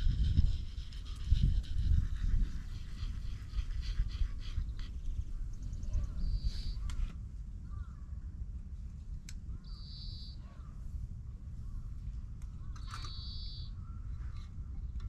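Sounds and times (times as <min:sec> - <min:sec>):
bird short high call: 0:12.8 - 0:13.8.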